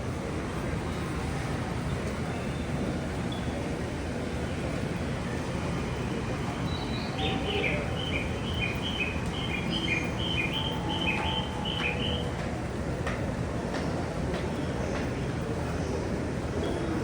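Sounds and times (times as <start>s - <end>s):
two-note bird call: 7.1s - 12.5s.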